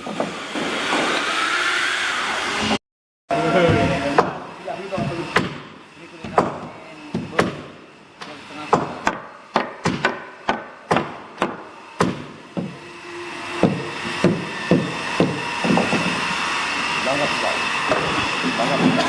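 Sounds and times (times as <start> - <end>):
hand tool knocking on timber: 6.2 - 7.6.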